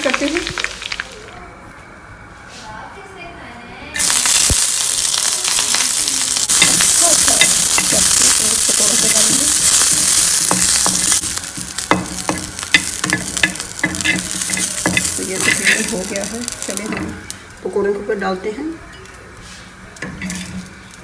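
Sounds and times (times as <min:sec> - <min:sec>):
chillies sizzling in a frying pan: 0:00.0 - 0:01.4, 0:04.0 - 0:21.0.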